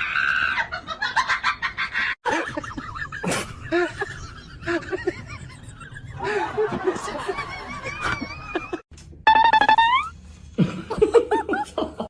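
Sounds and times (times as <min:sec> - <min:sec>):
music with pitched instrument tones: 0:09.3 - 0:10.1.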